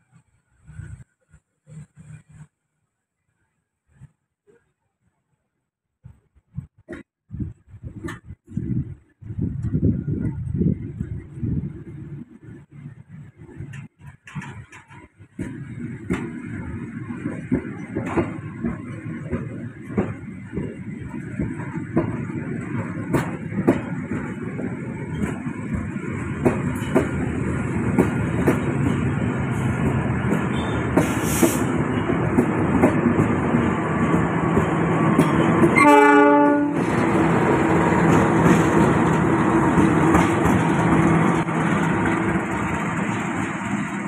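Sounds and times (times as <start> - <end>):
train wheels clicking over rail joints: 11.9 - 35.9, 36.5 - 44.0
train horn blast: 35.7 - 36.9.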